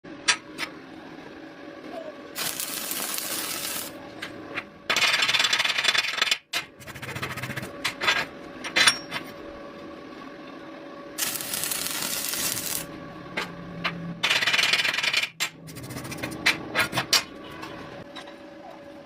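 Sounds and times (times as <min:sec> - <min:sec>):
crackling hissing bursts: 0:02.4 - 0:04.0, 0:11.2 - 0:12.9.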